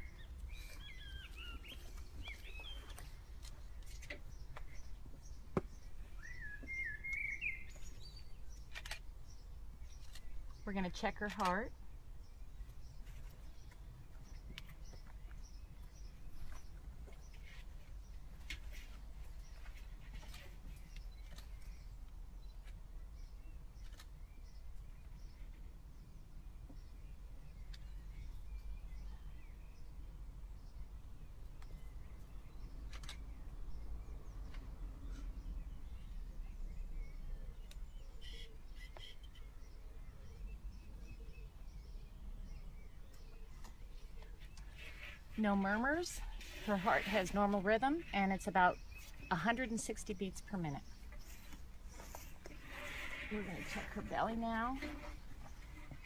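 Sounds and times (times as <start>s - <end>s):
faint birds chirping: 0.0s - 56.0s
faint small bird chirps: 6.2s - 9.0s, 34.4s - 45.3s
brief rustle: 32.9s - 33.2s.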